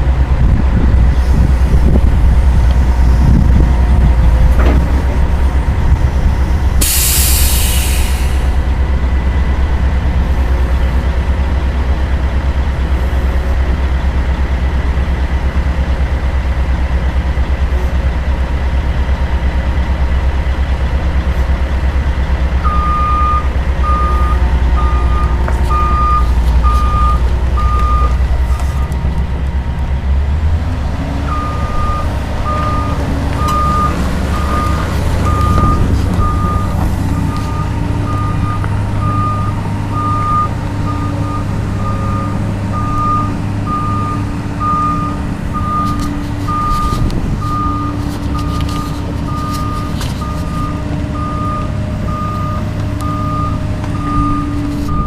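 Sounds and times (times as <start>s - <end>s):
excavator diesel engine running: 0.0s - 55.0s
travel alarm beeping: 22.6s - 29.0s, 31.3s - 55.0s.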